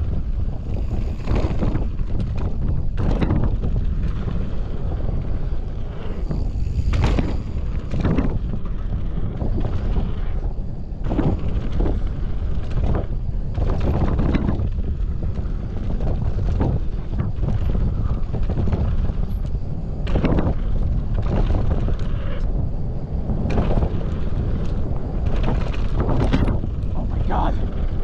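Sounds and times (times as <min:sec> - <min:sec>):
bike clattering and thudding: 0:00.0 - 0:28.0
low rumble of tyres: 0:00.0 - 0:28.0
wind buffeting microphone: 0:00.0 - 0:28.0.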